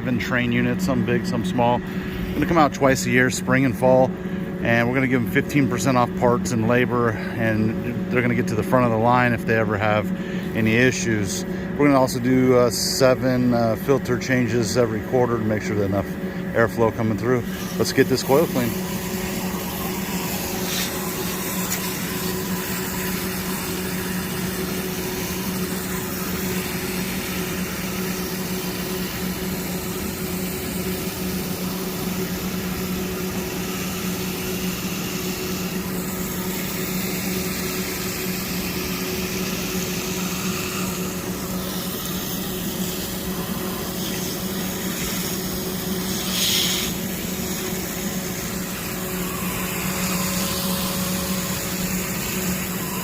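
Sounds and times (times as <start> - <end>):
steady machine hum: 0.0 - 53.0
water spraying onto coil: 16.8 - 53.0.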